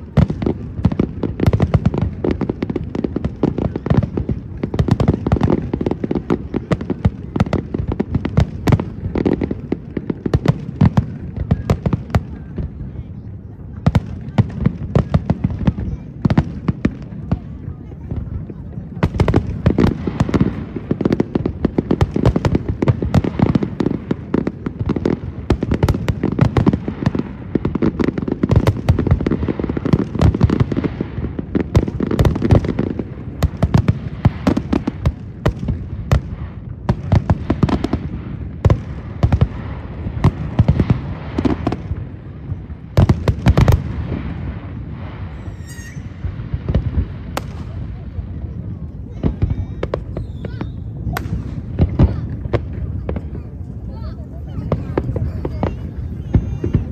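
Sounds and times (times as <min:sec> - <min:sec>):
fireworks bursts and crackling: 0:00.0 - 0:56.9
wavering high firework whistle: 0:45.2 - 0:46.8, 0:50.1 - 0:51.2.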